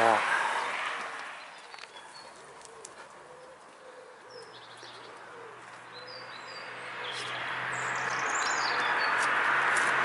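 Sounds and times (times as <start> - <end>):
small birds chirping and trilling: 0.5 - 9.9
pigeon cooing: 2.0 - 7.3.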